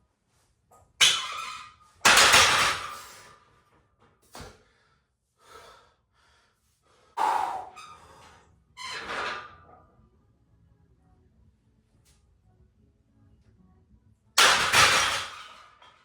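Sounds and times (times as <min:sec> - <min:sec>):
person breathing forcefully: 0:04.6 - 0:07.8.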